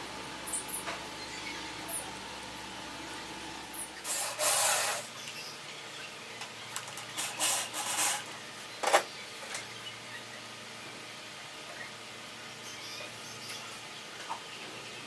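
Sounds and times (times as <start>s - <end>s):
scraping strokes: 7.2s - 8.3s.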